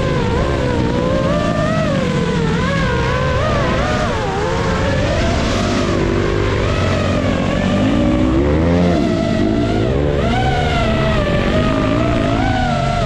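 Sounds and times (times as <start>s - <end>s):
high engine whine: 0.0s - 13.0s
low steady engine note: 0.0s - 13.0s
motorcycle engines revving: 0.0s - 13.0s.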